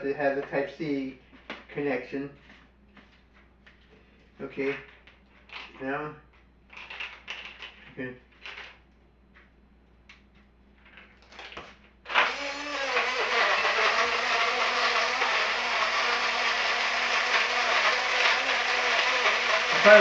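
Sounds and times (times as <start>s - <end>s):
blender blending ice: 12.1s - 20.0s.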